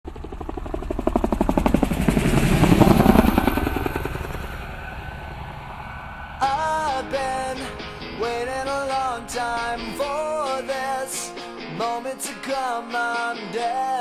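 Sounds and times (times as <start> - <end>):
helicopter rotor chopping: 0.1 - 12.8
music: 6.4 - 14.0.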